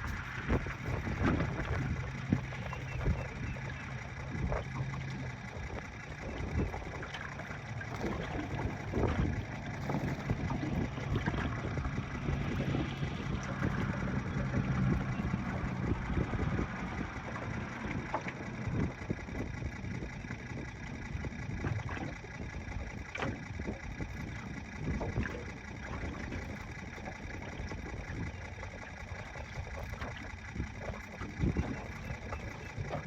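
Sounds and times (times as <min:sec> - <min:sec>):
boat motor humming: 0:00.0 - 0:33.0
wind and water noise: 0:00.0 - 0:33.0.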